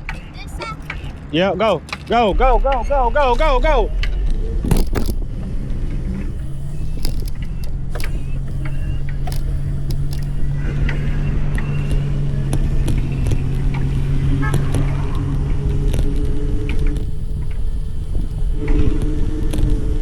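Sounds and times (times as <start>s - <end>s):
small rattles and clicks: 0.0s - 20.0s
vehicle low hum: 0.0s - 20.0s
wind rumble on microphone: 2.0s - 20.0s.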